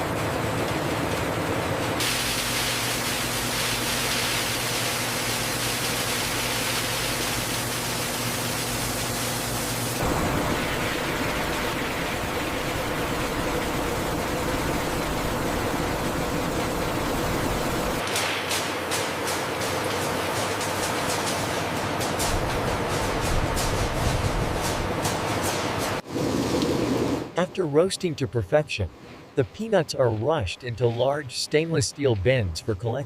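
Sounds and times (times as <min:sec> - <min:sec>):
industrial machinery hiss: 0:02.0 - 0:26.0.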